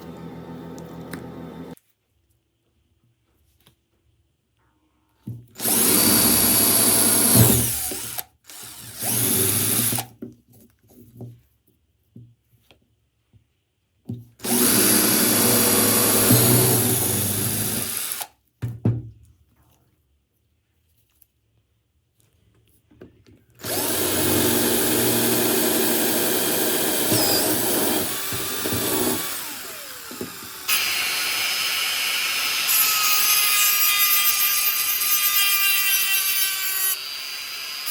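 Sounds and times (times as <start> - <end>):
handheld electric power tool running: 5.6 - 10.1, 14.4 - 18.3, 23.6 - 37.9.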